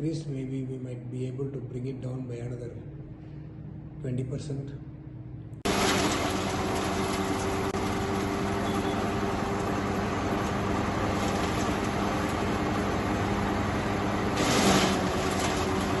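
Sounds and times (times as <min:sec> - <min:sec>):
wood chipper running: 0:05.6 - 0:16.0.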